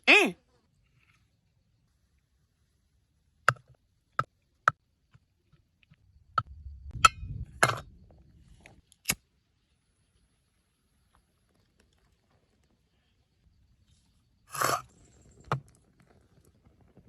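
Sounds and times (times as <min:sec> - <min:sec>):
low rumble: 0:06.0 - 0:08.8.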